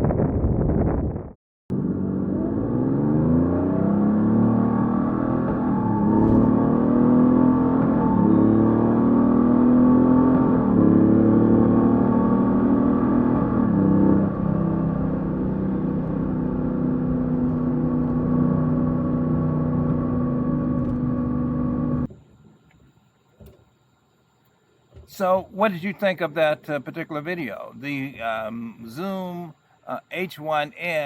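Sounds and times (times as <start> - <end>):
motorcycle engine running: 4.0 - 22.1.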